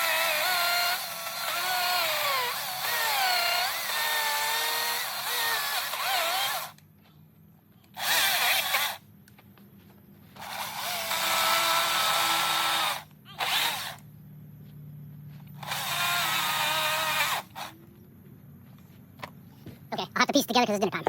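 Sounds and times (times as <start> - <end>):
power tool whining on wood: 0.0 - 6.8, 8.0 - 9.0, 10.4 - 14.0, 15.5 - 17.8.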